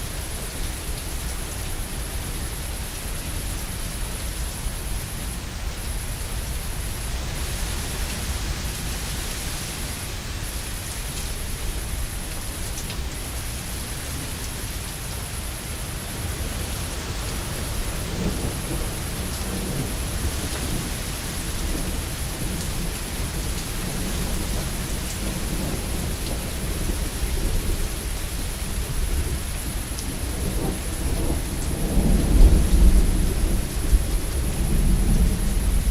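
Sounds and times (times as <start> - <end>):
heavy rain: 0.0 - 35.9
low rolling thunder: 16.0 - 35.9.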